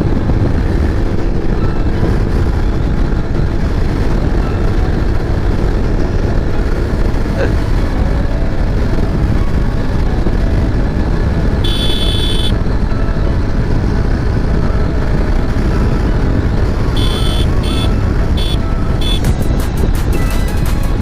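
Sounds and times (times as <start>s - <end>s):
motorcycle riding at speed: 0.0s - 21.0s
wind and road noise: 0.0s - 21.0s
short high-pitched tones: 11.6s - 12.6s, 16.9s - 19.4s.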